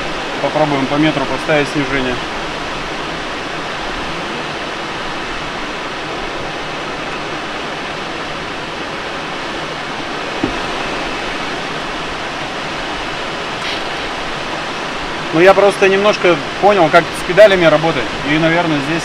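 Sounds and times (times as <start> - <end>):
short knock: 10.4 - 10.8.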